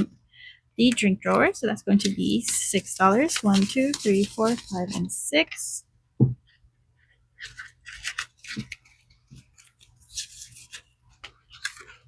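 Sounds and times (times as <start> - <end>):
paper banknotes rustling: 2.0 - 5.0.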